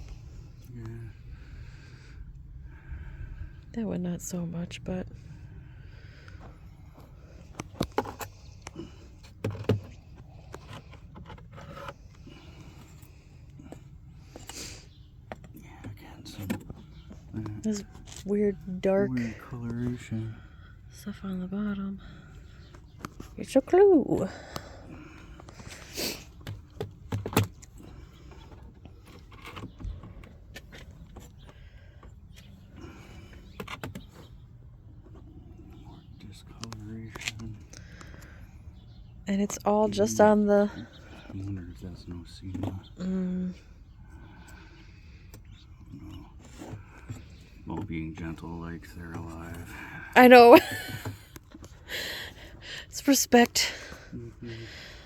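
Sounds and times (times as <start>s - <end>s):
wood scraping: 7.3s - 13.2s
wooden frames clicking and knocking: 7.5s - 12.8s.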